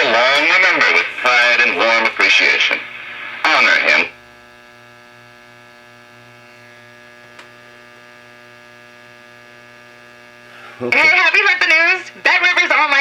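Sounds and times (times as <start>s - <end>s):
buzzy mains hum from speaker: 0.0s - 13.0s.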